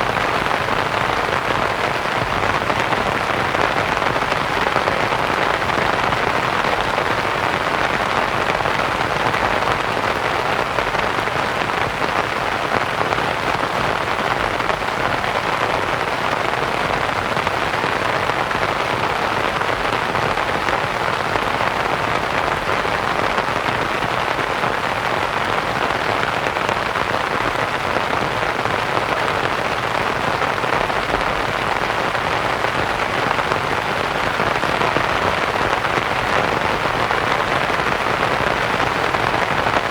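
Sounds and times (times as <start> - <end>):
rain pattering on a tent: 0.0 - 39.9
white-noise hiss: 0.0 - 39.9.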